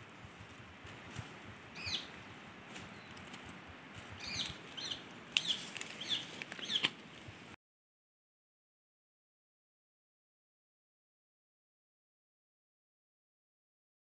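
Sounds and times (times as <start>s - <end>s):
birds chirping: 1.6s - 7.0s
leafy stalks rustling and snapping: 2.6s - 7.3s.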